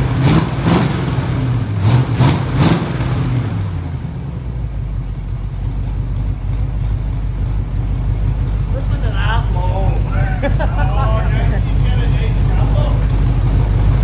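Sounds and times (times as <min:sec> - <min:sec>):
car engine revving and running: 0:00.0 - 0:14.0.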